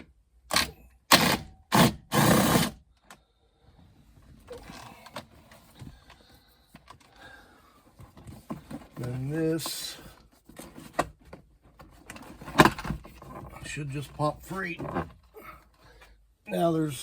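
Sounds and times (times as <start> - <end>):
clicks and rustles of handling: 7.8 - 16.1.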